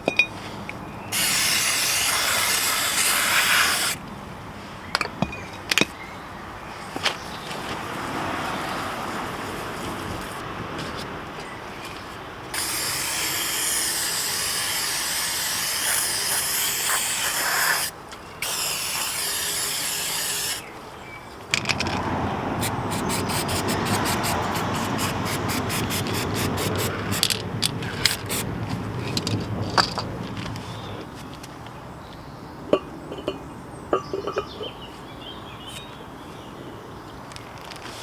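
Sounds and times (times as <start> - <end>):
aerosol spray hissing: 1.2 - 4.0, 12.6 - 20.7, 22.6 - 27.3, 28.1 - 28.5
rough scrubbing: 12.6 - 20.7, 21.8 - 29.2.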